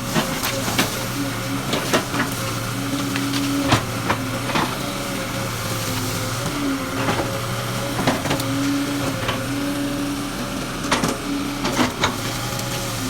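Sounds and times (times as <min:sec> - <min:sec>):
excavator engine hum: 0:00.0 - 0:13.0.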